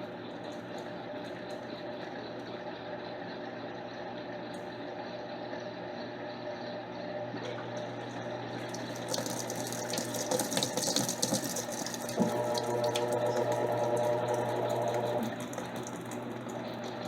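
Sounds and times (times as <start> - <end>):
washing machine running: 0.0 - 17.0
water rushing in drum: 8.6 - 17.0.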